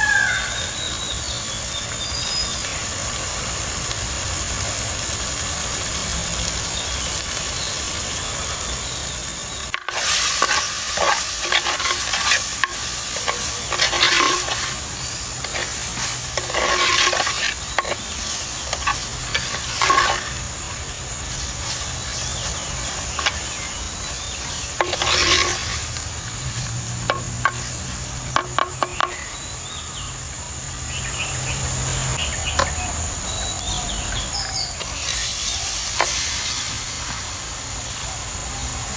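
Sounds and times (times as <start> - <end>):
food sizzling in a pot: 0.0 - 38.9
spoon stirring and scraping pot: 9.7 - 29.3.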